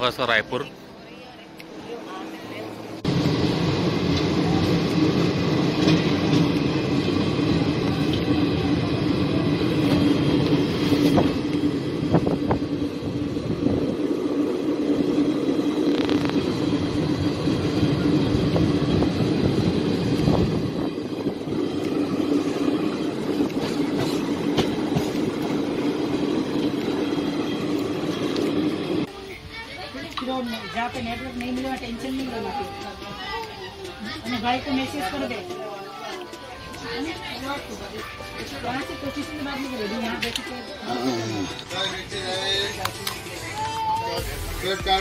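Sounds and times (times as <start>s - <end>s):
train interior hum and rumble: 0.0s - 29.6s.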